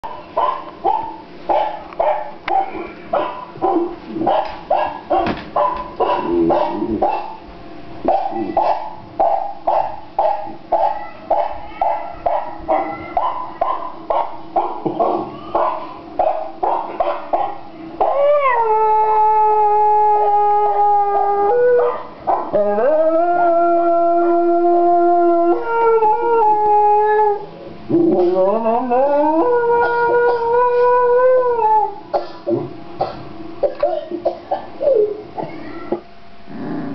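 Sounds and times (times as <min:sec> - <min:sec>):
small dog barking: 0:00.0 - 0:07.4, 0:08.1 - 0:17.6
dog howling: 0:15.0 - 0:32.0.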